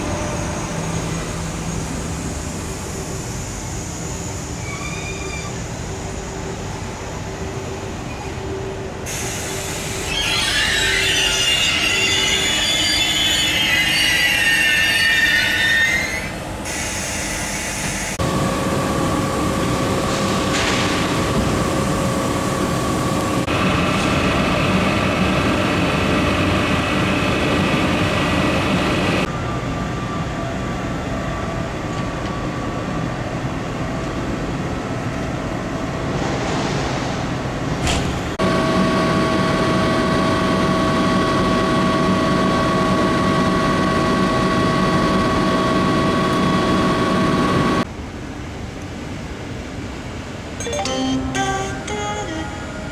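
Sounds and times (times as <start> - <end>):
train rumbling: 0.0 - 50.6
train wheels squealing: 3.0 - 6.5, 9.1 - 18.2.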